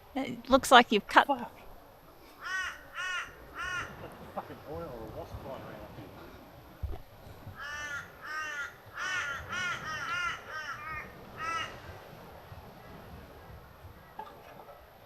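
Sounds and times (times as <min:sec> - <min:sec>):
crow cawing: 0:02.4 - 0:04.1, 0:07.6 - 0:12.0.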